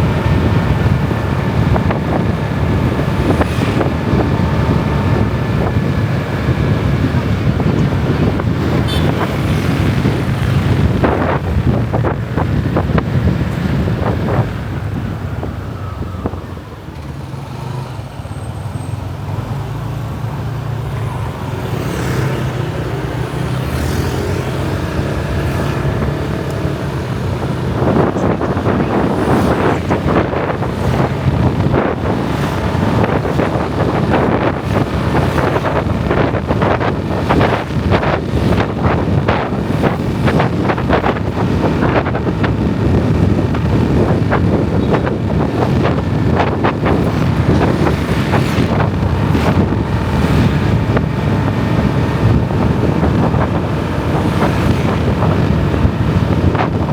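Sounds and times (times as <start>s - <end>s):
wind buffeting microphone: 0.0s - 56.9s
motorbike engine running: 20.1s - 56.9s.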